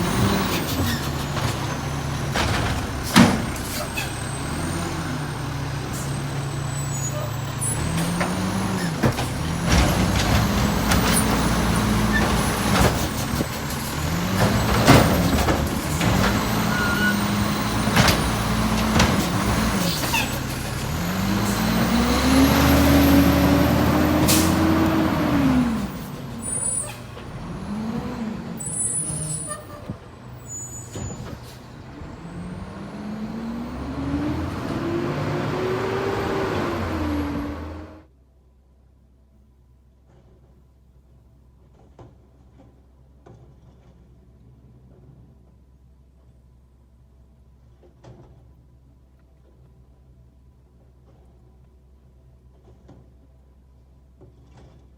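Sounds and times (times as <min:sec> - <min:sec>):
clunks: 0:00.0 - 0:38.0
diesel truck engine revving: 0:00.0 - 0:38.1.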